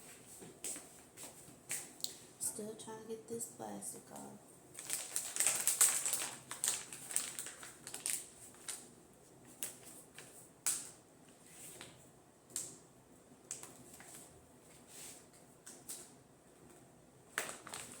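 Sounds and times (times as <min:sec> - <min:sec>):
plastic wrapping crinkling: 0:04.7 - 0:11.0, 0:17.3 - 0:18.0.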